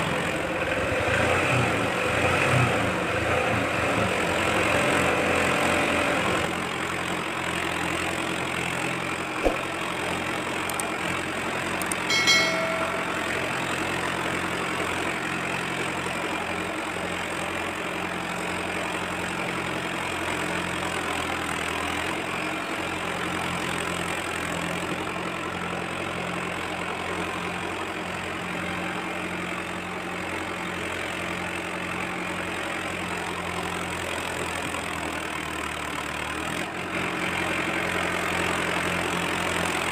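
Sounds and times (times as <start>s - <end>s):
sharp knock: 9.4s - 9.7s
short beep: 11.8s - 13.6s.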